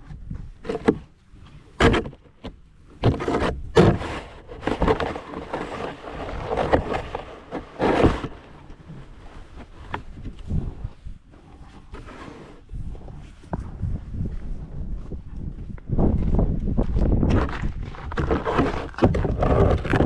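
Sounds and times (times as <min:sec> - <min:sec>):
snow shovel scraping snow: 0:03.0 - 0:08.6, 0:11.7 - 0:12.6, 0:18.0 - 0:19.9.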